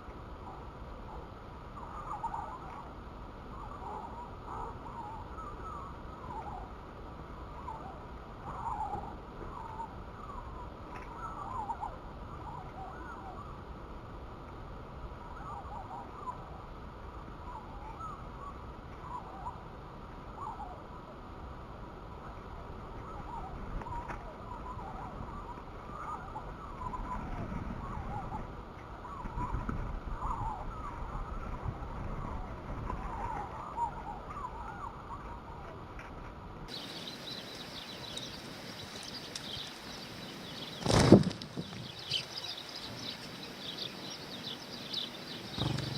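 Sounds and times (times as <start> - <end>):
birds chirping: 36.7 - 45.9
low rumble: 45.6 - 45.9.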